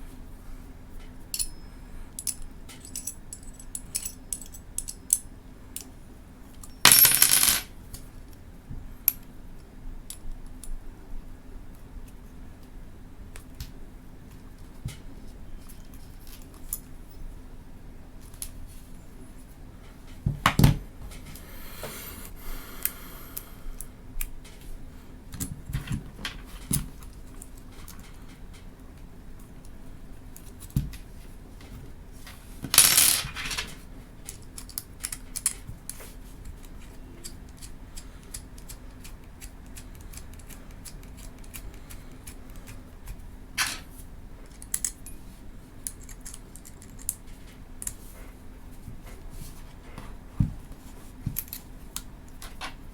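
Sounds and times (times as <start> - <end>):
small parts clicking and clinking: 1.3 - 1.6, 2.2 - 5.9, 6.6 - 7.7, 32.6 - 42.9, 44.4 - 45.2, 45.8 - 48.0.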